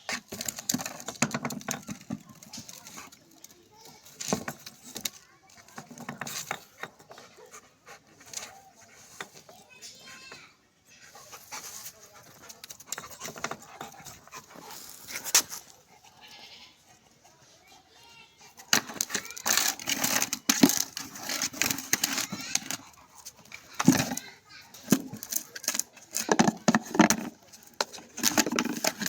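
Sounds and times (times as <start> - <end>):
sharp knocks and scuffling: 0.0 - 16.0, 17.0 - 29.0
dog panting: 7.0 - 9.4, 11.0 - 18.7, 21.7 - 25.2.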